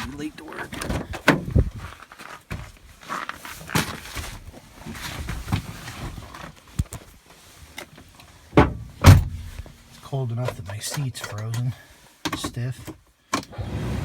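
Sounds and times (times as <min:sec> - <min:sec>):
loud thump: 0:08.6 - 0:09.5.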